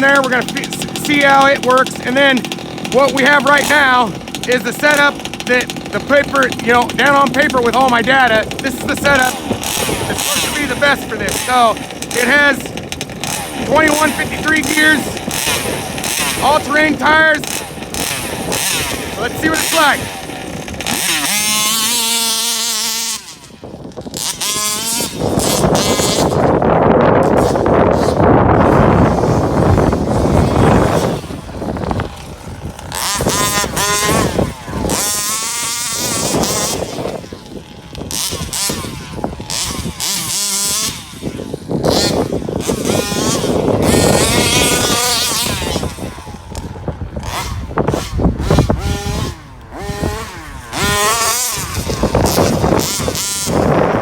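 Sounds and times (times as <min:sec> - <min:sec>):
loud noisy rush: 0:00.0 - 0:21.4
two-stroke engine revving: 0:00.0 - 0:54.0.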